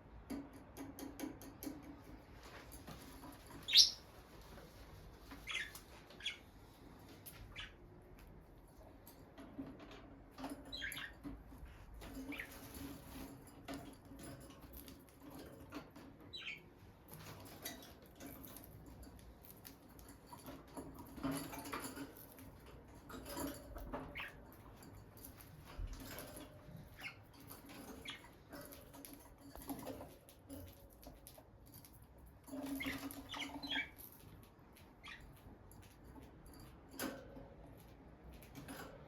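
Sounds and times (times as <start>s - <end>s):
birds scratching and pattering: 0.3s - 39.0s
high bird chirps: 3.6s - 4.1s.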